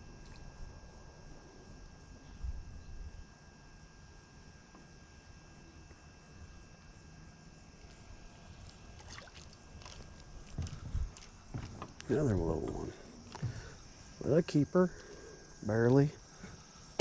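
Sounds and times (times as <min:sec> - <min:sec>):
faint high whine: 0:00.0 - 0:17.0
wind rumble on microphone: 0:02.3 - 0:03.3, 0:10.5 - 0:12.9
faint water lapping: 0:07.8 - 0:14.2.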